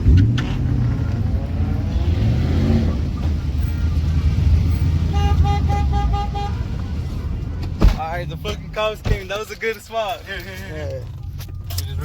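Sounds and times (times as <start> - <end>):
truck engines rumbling: 0.0 - 12.0
horn short toots: 5.0 - 6.8.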